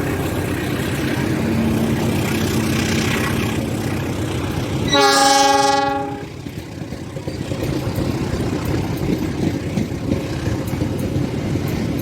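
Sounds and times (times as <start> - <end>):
train rumbling: 0.0 - 12.0
train horn blast: 4.9 - 6.3.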